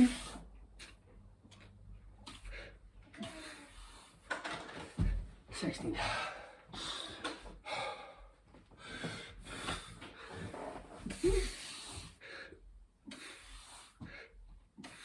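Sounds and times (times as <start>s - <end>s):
man breathing hard: 6.0s - 15.0s.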